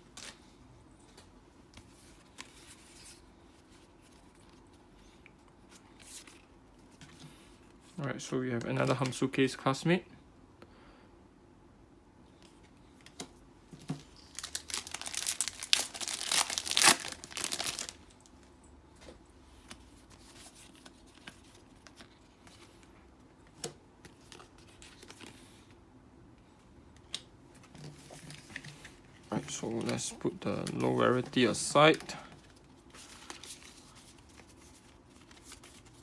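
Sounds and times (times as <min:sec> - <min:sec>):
foil wrapper crinkling and tearing: 0:14.2 - 0:18.4.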